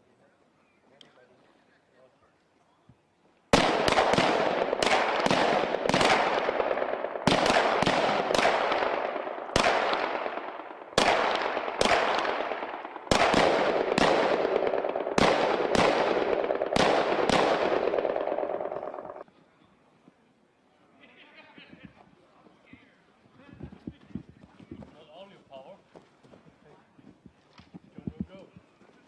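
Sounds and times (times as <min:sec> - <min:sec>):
rifle shots with echo: 0:03.5 - 0:19.2.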